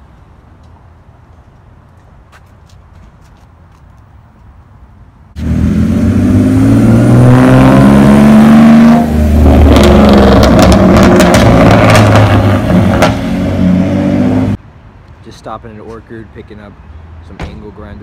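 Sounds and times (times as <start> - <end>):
car engine accelerating hard: 5.4 - 14.6
exhaust popping: 5.4 - 14.6.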